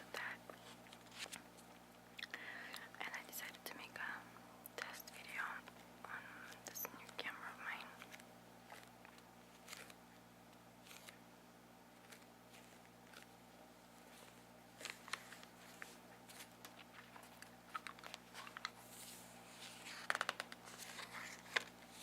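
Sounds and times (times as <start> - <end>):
steady low hum: 0.0 - 22.0
candy crunching while chewed: 8.0 - 10.0, 16.4 - 18.8.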